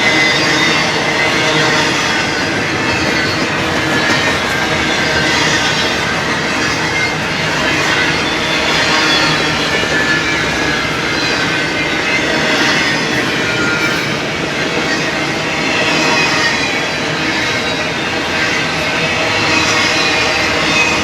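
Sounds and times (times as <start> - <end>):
high-pitched wheel squeal: 0.0 - 14.2
freight train cars rumbling: 0.0 - 21.0.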